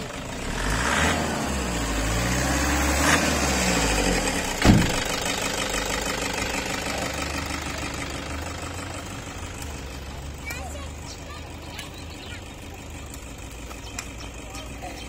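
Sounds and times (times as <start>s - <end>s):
car engine idling: 0.0s - 15.0s
heavy thump: 4.6s - 5.1s.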